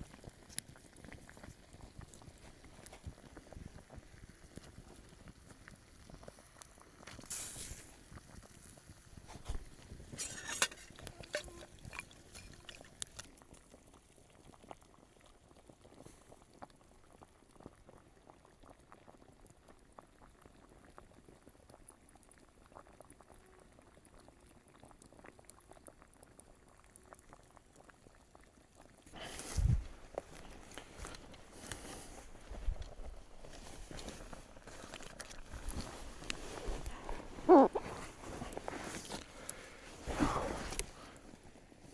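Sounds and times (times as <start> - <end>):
water bubbling in a pot: 0.0 - 41.9.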